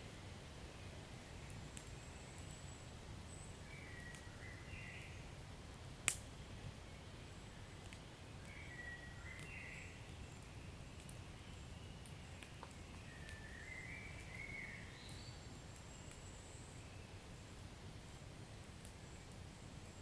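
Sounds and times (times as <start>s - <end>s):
fire crackling: 0.0s - 20.0s
sharp pop of fire: 6.0s - 6.3s.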